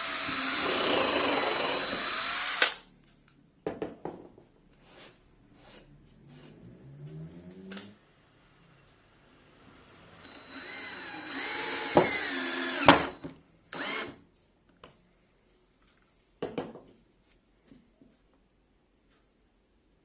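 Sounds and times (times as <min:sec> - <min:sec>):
power drill running: 0:00.0 - 0:02.8, 0:09.9 - 0:14.2.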